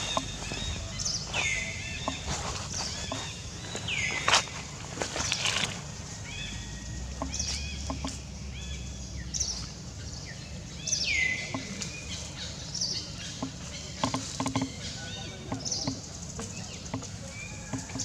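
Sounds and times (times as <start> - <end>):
soft ticks and rustles: 0.0 - 6.0, 13.3 - 18.0
birds chirping: 0.0 - 18.0.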